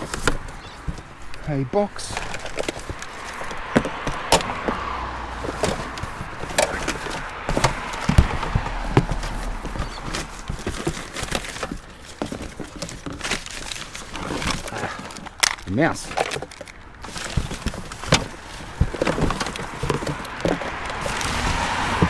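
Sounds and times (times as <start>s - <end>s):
rustling: 0.0s - 22.0s.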